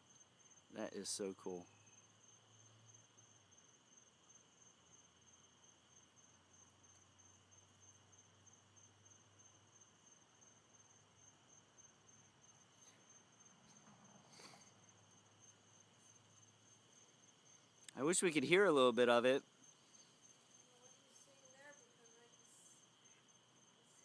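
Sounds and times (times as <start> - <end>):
night insects chirping: 0.0 - 24.0
faint rustle: 12.6 - 17.9.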